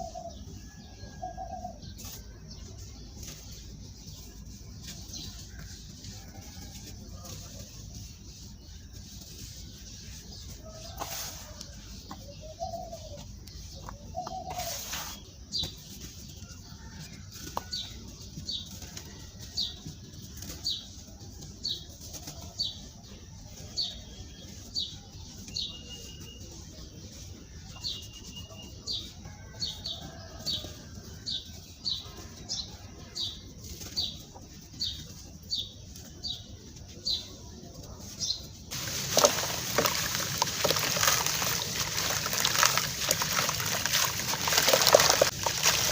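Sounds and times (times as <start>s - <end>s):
small bird chirping: 23.6s - 26.6s.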